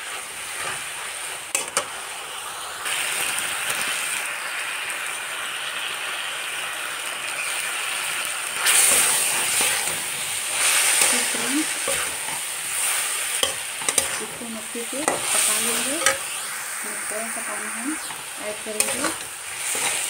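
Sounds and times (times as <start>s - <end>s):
vegetables sizzling in oil: 0.0s - 20.0s
spatula stirring: 8.6s - 16.5s, 17.6s - 20.0s
spatula clicking on pan: 13.4s - 14.2s, 15.0s - 16.3s.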